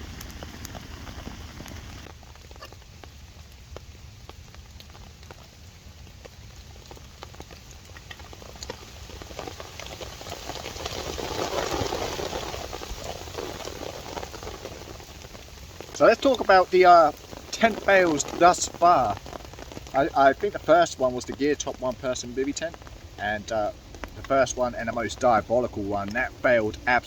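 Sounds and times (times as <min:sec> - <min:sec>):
rain pattering: 0:00.0 - 0:27.0
drops ticking: 0:12.2 - 0:27.0.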